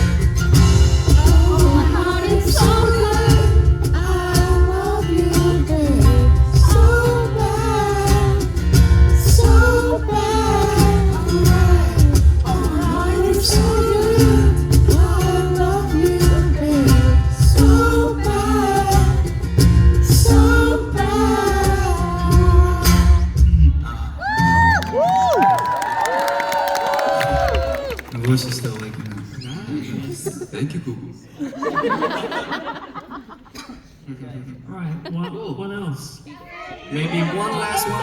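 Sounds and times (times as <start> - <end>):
live band playing: 0.0 - 25.5
person singing lead vocal: 0.9 - 24.6.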